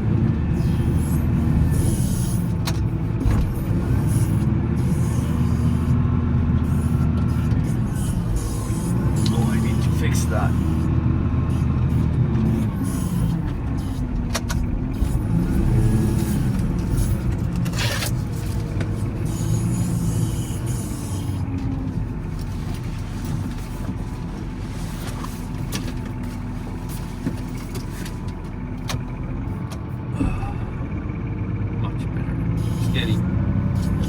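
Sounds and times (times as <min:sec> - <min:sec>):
wheel loader diesel engine: 0:00.0 - 0:34.0.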